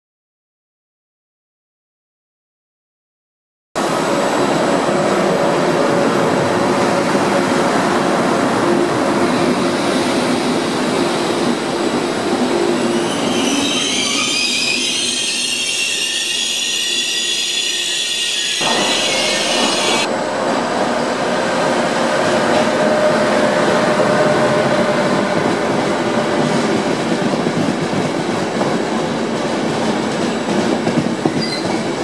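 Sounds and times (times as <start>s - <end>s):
train wheels rumbling on rail: 3.8s - 32.0s
high-pitched wheel squeal: 12.9s - 20.1s, 31.3s - 31.8s.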